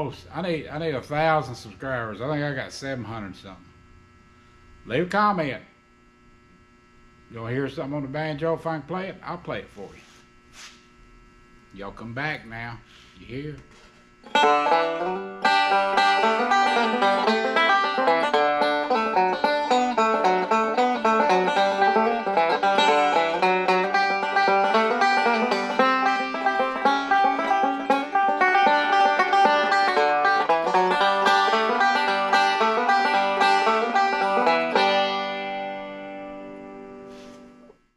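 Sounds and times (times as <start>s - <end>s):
banjo playing bluegrass: 14.3s - 36.5s.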